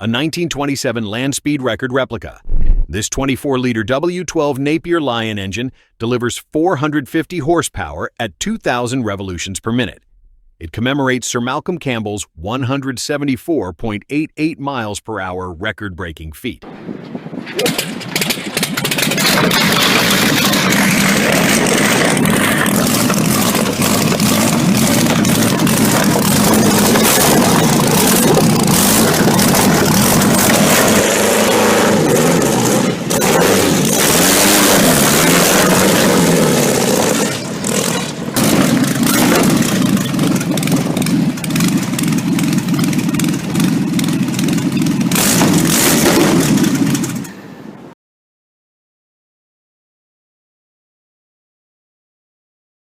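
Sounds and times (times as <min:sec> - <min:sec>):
aero engine revving: 0:17.6 - 0:47.4.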